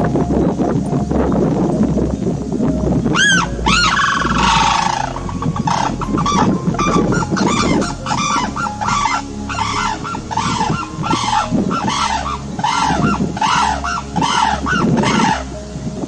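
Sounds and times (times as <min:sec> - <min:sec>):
cranes trumpeting calls: 0:03.2 - 0:15.6.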